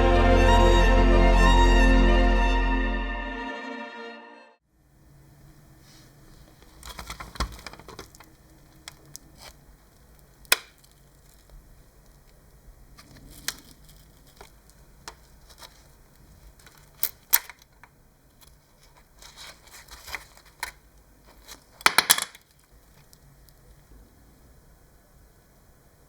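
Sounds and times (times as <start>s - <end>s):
small clicks and knocks: 6.6s - 12.4s, 13.0s - 23.8s.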